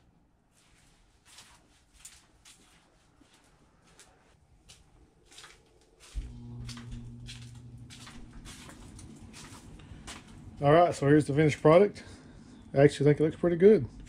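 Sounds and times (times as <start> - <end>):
footsteps on concrete: 0.8 - 10.7
steady low hum: 3.0 - 14.0.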